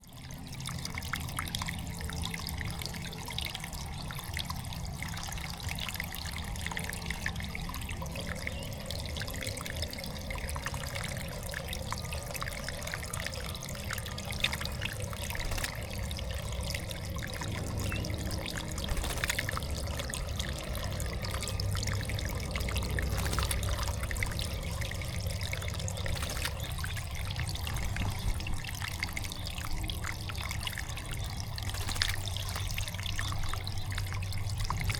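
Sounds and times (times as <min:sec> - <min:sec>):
water trickling and dripping: 0:00.0 - 0:34.9.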